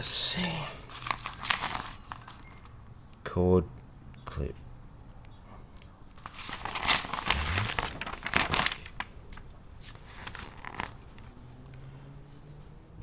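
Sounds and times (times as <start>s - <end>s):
packaging crinkling and rustling: 0.4s - 2.8s, 6.1s - 11.4s.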